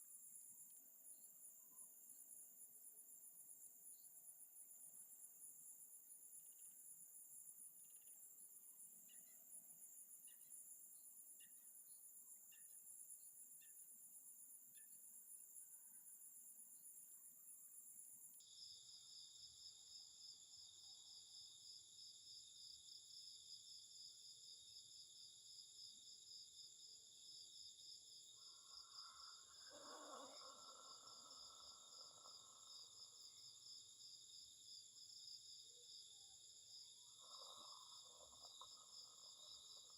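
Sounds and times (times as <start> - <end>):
insects trilling: 28.2 - 39.9.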